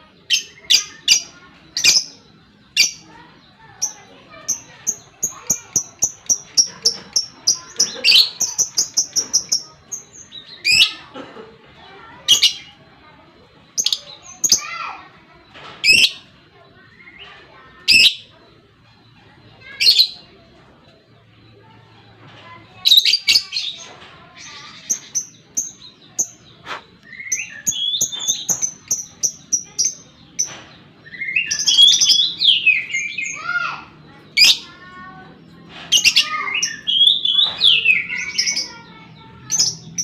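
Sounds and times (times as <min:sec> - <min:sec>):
lovebird chattering chirps: 0:00.3 - 0:11.2, 0:22.8 - 0:35.2.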